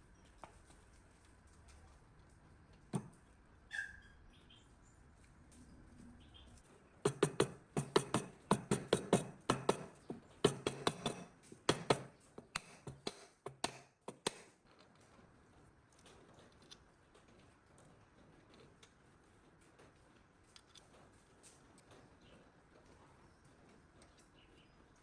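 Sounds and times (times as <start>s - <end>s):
sharp taps: 3.0s - 3.2s, 7.1s - 14.5s.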